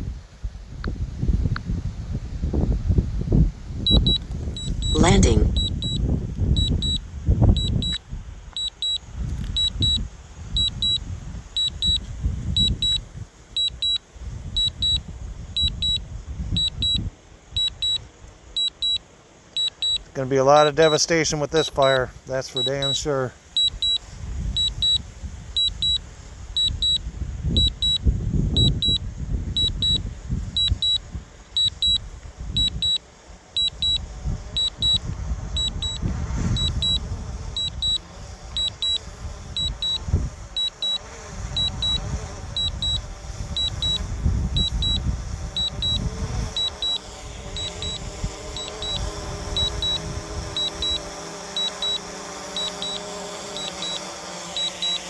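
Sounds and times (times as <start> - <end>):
gusty wind buffeting microphone: 0.0 - 18.3, 23.7 - 51.0
remote controller beeping: 3.9 - 6.0, 6.6 - 7.0, 7.6 - 8.0, 8.6 - 9.0, 13.6 - 14.0, 17.6 - 18.0, 18.6 - 19.0, 19.6 - 20.1, 22.6 - 24.0, 24.6 - 25.0, 25.6 - 26.0, 26.6 - 27.0, 32.6 - 33.0, 33.6 - 34.0, 34.6 - 35.0, 35.6 - 36.0, 36.6 - 37.0, 37.6 - 38.0, 38.6 - 39.0, 39.6 - 40.0, 40.6 - 41.0, 42.6 - 43.0, 43.6 - 44.0, 44.6 - 45.0, 45.6 - 46.0, 46.6 - 48.0, 48.6 - 51.0, 51.6 - 55.0.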